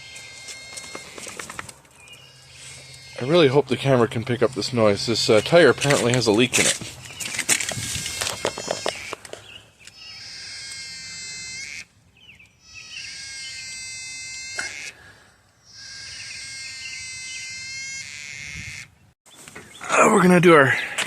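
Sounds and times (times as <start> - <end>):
animal trilling call: 0.0 - 4.0, 7.8 - 9.3, 9.9 - 11.9, 12.5 - 15.0, 15.6 - 19.0.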